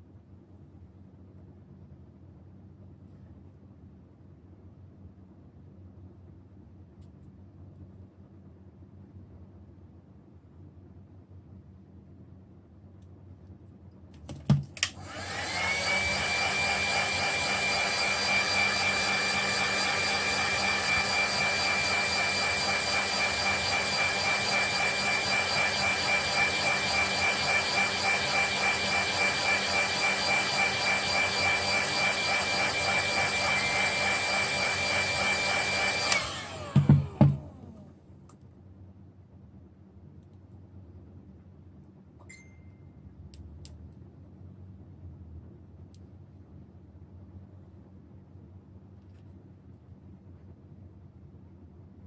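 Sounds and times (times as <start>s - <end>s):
electric motor whining: 15.0s - 37.8s.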